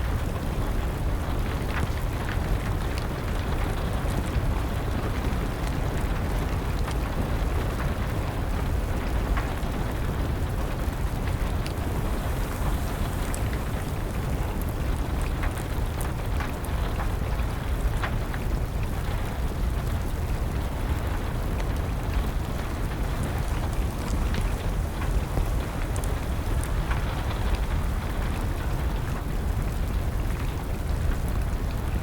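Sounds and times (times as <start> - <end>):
wood fire crackling: 0.1 - 31.9
rain hissing: 11.2 - 15.5, 21.8 - 28.4.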